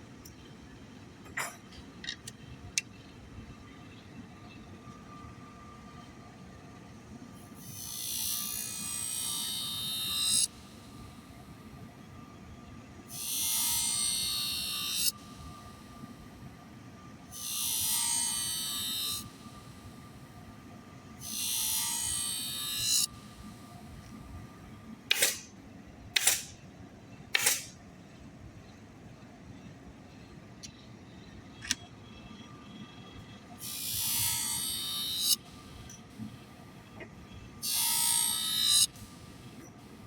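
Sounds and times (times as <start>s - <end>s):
sharpener motor whining: 7.6s - 10.5s, 13.2s - 15.1s, 17.3s - 19.4s, 21.2s - 23.5s, 33.6s - 35.4s, 37.6s - 39.1s.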